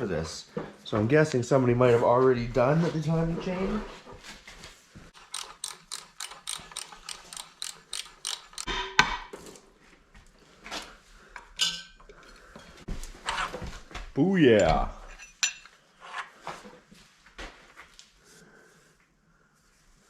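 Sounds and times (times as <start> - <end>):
hand ratchet clicking: 5.2 - 8.7.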